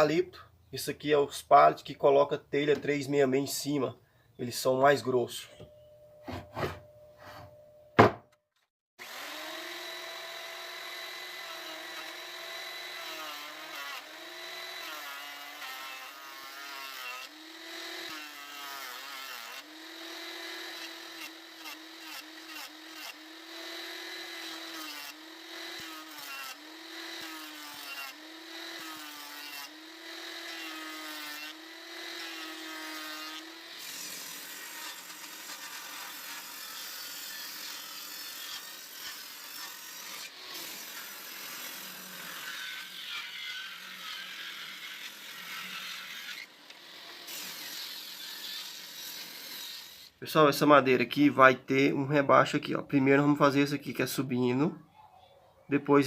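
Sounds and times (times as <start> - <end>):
electric saw cutting wood: 9.0 - 50.2.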